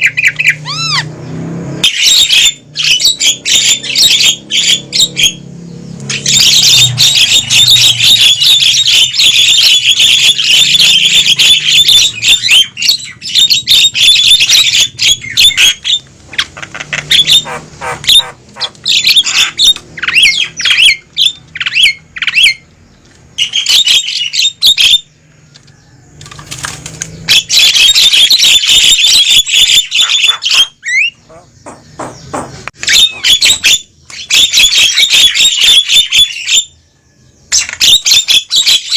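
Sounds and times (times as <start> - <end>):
mynas chattering and squawking: 0.0 - 1.2, 6.1 - 22.6, 27.2 - 36.6.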